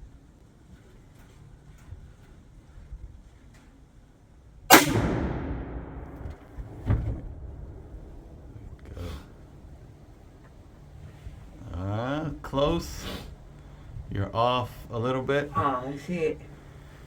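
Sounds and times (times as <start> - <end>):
rifle shot with echo: 4.7 - 8.7.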